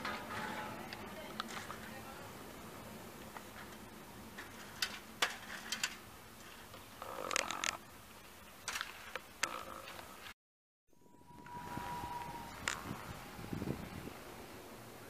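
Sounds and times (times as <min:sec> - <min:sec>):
faint passenger train running: 0:00.0 - 0:05.2, 0:11.0 - 0:15.0.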